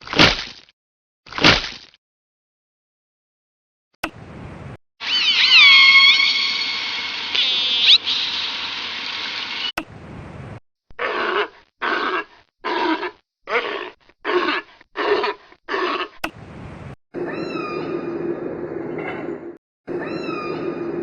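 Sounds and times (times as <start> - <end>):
animal call with whistle-like tones: 5.0 - 8.4.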